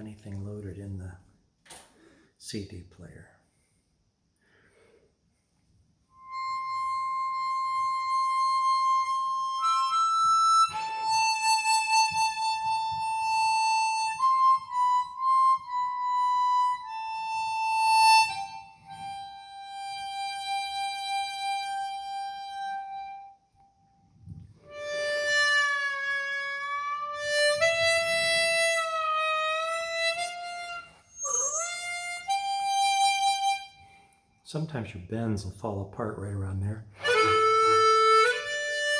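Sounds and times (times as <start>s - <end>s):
harmonica long held notes: 6.1s - 34.3s, 37.0s - 38.9s.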